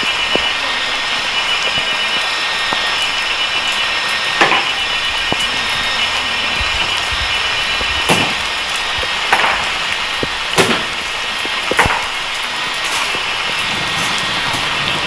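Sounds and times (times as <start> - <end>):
heavy rain: 0.0 - 15.0.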